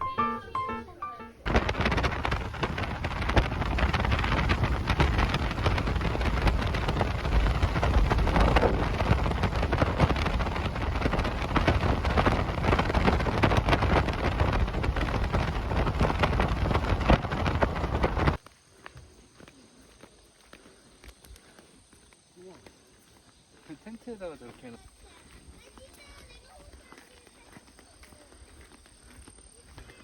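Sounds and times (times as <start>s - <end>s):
deep rumble: 1.4s - 18.4s
water pattering: 1.4s - 18.4s.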